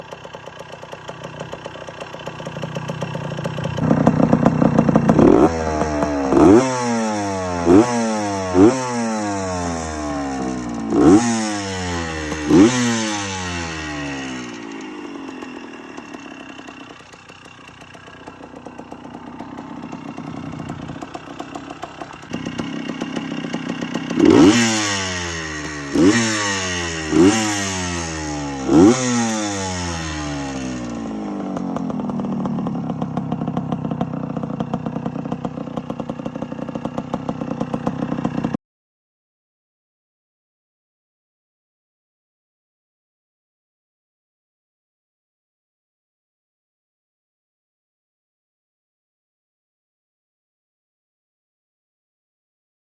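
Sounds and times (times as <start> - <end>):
two-stroke engine revving: 0.0 - 38.6.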